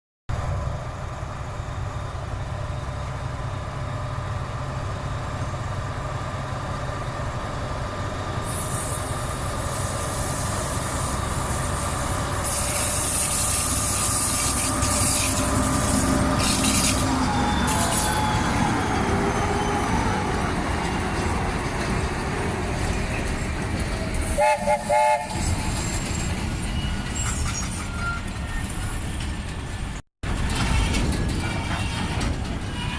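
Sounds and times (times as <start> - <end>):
diesel locomotive engine rumble: 0.3 - 32.9
hiss: 8.4 - 17.1.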